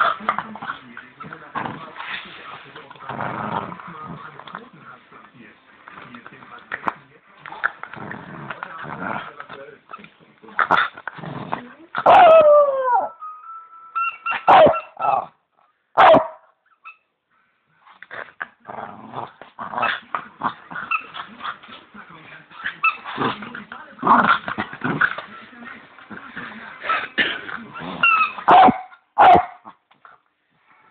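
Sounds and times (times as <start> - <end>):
dog yipping and barking: 12.0 - 13.1, 14.0 - 15.3, 16.0 - 17.0, 28.0 - 29.6
squeaky toy squeaking: 13.9 - 15.1, 20.8 - 21.3, 22.6 - 23.2, 27.8 - 28.8.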